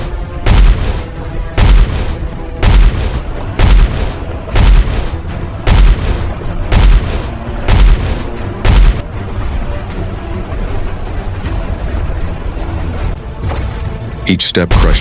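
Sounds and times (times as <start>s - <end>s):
low orchestral score: 0.0s - 15.0s
deep heavy booms: 0.4s - 9.0s.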